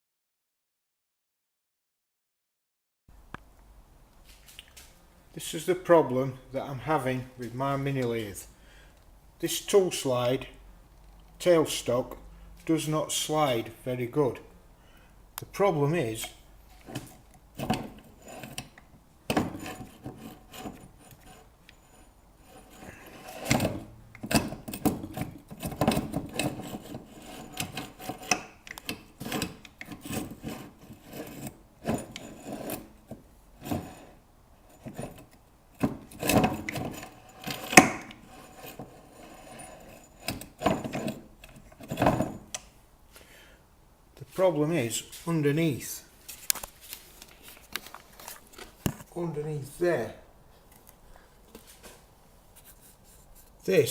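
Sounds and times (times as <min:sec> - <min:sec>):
metal scraping and rubbing: 0:16.0 - 0:42.5, 0:51.8 - 0:53.9
sharp metal knocks: 0:37.7 - 0:38.2.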